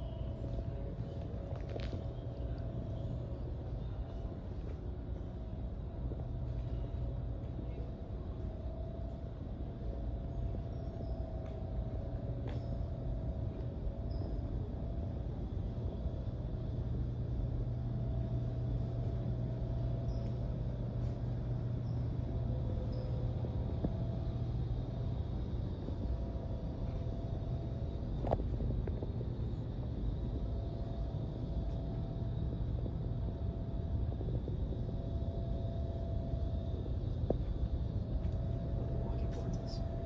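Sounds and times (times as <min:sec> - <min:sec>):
faint steady whine: 0:00.0 - 0:40.0
vehicle engine rumble: 0:11.4 - 0:40.0.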